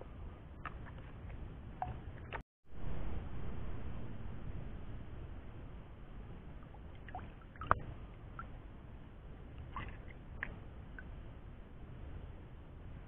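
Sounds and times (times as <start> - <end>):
water sloshing and trickling: 6.6 - 8.6, 9.6 - 11.2
small water splashes: 6.8 - 8.5, 9.6 - 11.1.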